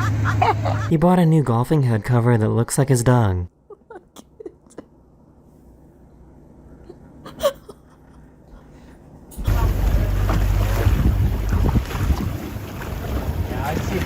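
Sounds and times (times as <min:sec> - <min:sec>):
wind buffeting microphone: 0:09.4 - 0:14.0.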